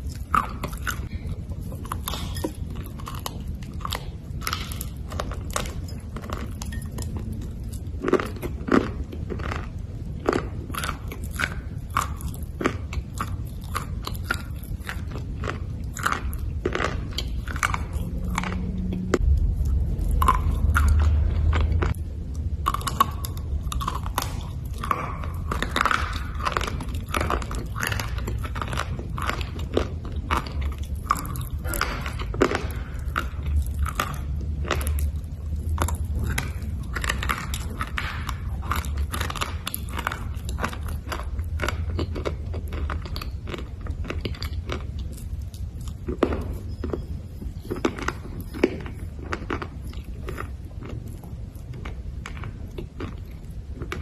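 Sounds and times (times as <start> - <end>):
low rumble: 0.0 - 54.0
slate being chewed with crunches: 0.0 - 54.0.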